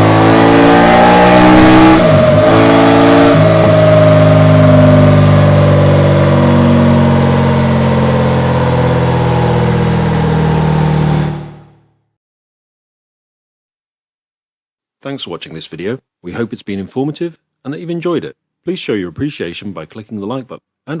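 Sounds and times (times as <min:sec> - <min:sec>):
motorcycle engine at high revs: 0:00.0 - 0:11.8.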